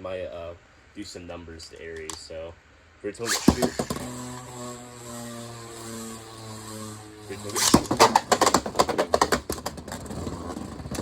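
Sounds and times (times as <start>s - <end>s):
whirring hum: 3.1s - 11.0s
spinning tops launcher clack: 3.2s - 4.5s, 7.4s - 9.7s
spinning tops clicking and rattling: 3.2s - 4.6s, 6.1s - 9.4s.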